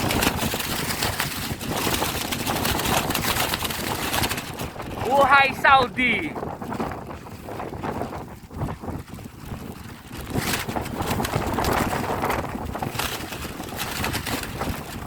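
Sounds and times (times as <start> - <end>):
wind gusting against microphone: 0.0 - 15.0.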